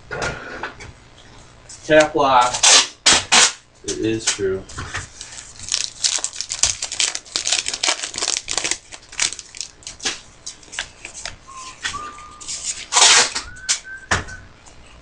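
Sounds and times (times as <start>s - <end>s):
cards and wrappers rustling: 4.9s - 11.3s.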